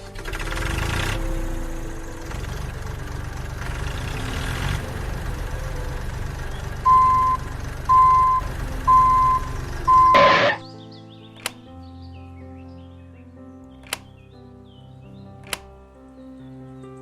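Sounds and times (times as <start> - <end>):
engine rumbling: 0.0 - 10.6
reversing beeper: 6.8 - 10.6.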